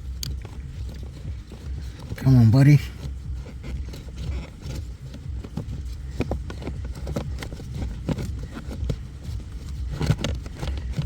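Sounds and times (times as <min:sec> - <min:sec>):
steady low hum: 0:00.0 - 0:11.0
plastic knocks and scrapes: 0:02.9 - 0:11.0.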